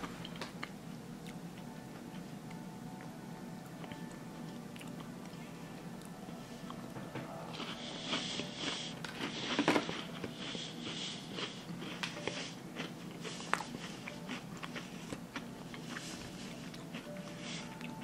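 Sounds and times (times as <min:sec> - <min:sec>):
crunching and chewing cookie: 0:03.8 - 0:18.0.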